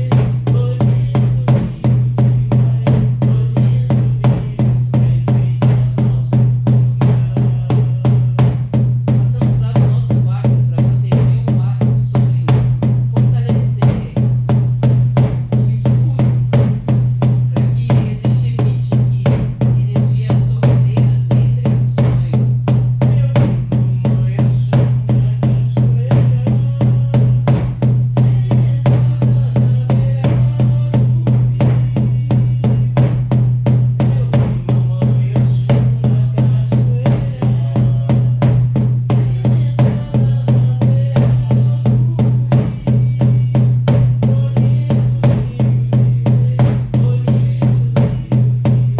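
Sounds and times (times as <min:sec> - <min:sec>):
frame drums beating: 0:00.0 - 0:48.9.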